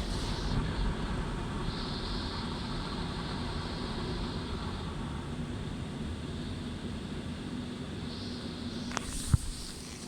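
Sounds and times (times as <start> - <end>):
car wash rushing hiss: 0.0 - 0.6, 8.2 - 10.0.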